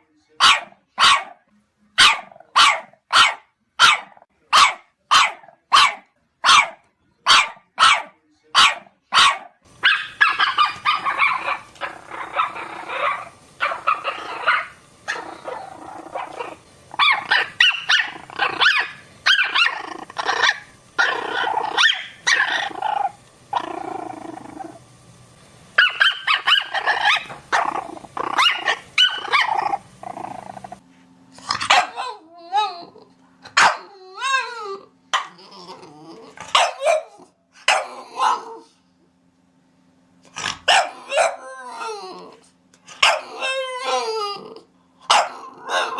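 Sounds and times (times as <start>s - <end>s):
dog barking: 0.4s - 1.4s, 2.0s - 11.7s, 16.2s - 19.7s, 21.8s - 22.5s, 25.8s - 27.7s, 31.6s - 32.2s, 33.5s - 33.9s, 36.5s - 38.6s, 40.7s - 41.5s, 43.0s - 43.3s, 45.1s - 45.9s.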